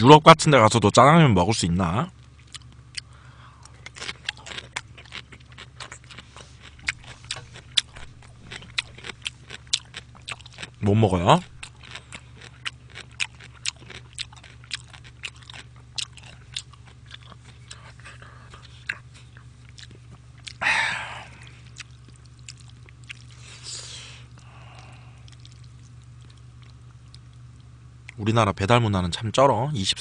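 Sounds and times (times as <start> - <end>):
person chewing food: 2.4 - 28.2
breathy burst: 20.6 - 21.6.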